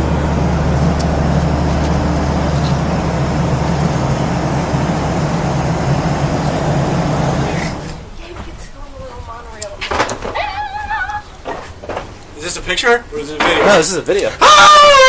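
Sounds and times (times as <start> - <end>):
low hum: 0.0 - 8.3
vehicle interior rumble: 0.0 - 9.5.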